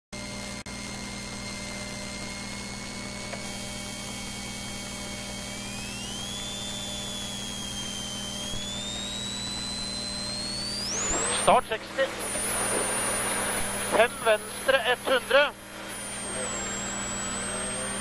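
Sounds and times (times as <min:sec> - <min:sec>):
rally car engine running: 0:08.6 - 0:18.0.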